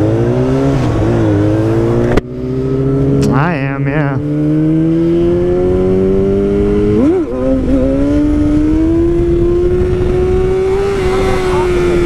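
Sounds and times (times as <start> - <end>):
motorcycle engine accelerating: 0.0 - 12.0
wind rush: 4.8 - 12.0.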